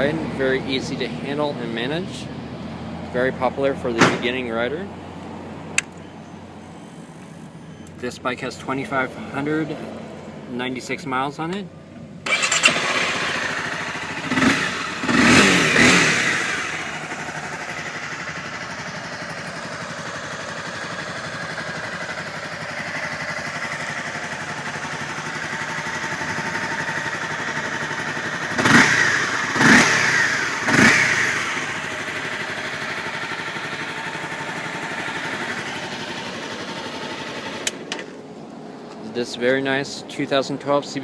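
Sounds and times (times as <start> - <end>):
motorcycle engine idling: 12.3 - 38.8.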